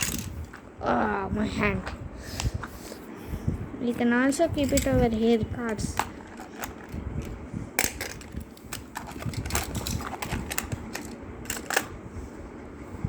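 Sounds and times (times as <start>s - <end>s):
toy cars clacking against plastic: 0.0s - 0.6s, 4.3s - 11.9s.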